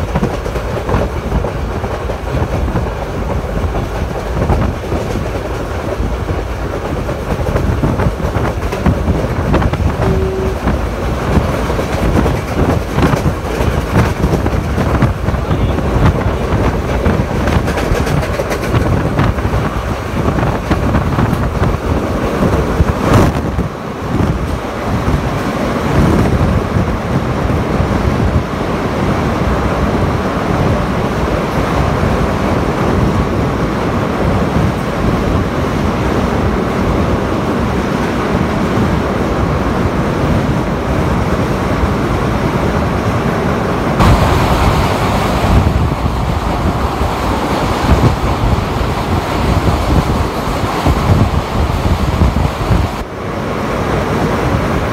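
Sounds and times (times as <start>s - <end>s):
wheels clicking over rails: 0.0s - 26.4s
rush of wind: 0.0s - 54.9s.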